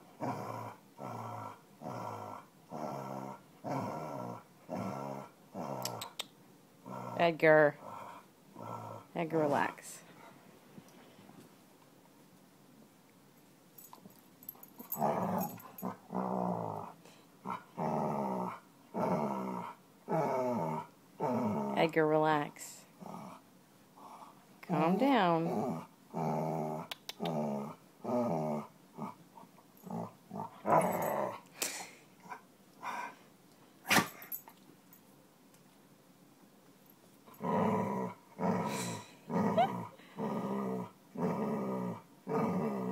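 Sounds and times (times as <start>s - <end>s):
dog growling: 0.1s - 6.2s, 6.8s - 9.6s, 14.8s - 22.0s, 22.9s - 23.4s, 24.0s - 29.2s, 29.8s - 31.5s, 37.3s - 42.9s.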